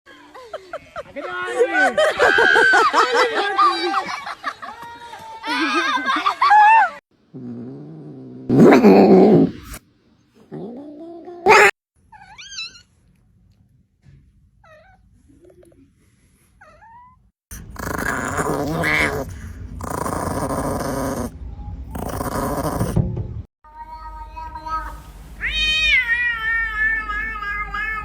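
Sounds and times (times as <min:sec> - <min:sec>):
cats growling and yowling: 0:06.8 - 0:09.8, 0:10.4 - 0:12.9, 0:16.6 - 0:23.0, 0:25.4 - 0:28.0.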